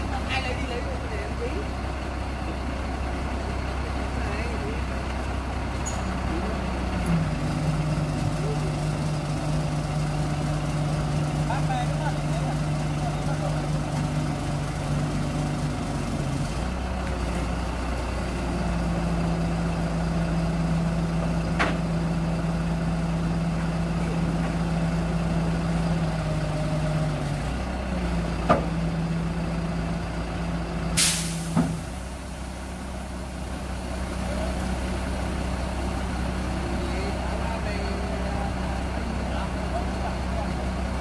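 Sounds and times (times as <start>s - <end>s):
heavy diesel engine running: 0.0s - 41.0s
hiss of released air: 31.0s - 32.7s.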